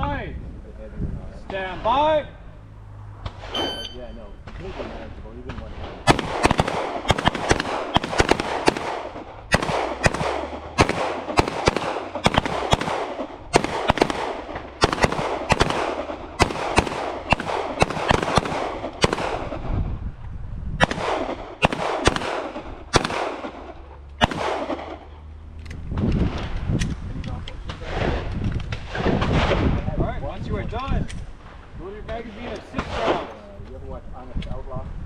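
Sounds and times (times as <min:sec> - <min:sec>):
handgun shots with echo: 0:06.0 - 0:19.6, 0:20.8 - 0:23.6, 0:24.2 - 0:25.1.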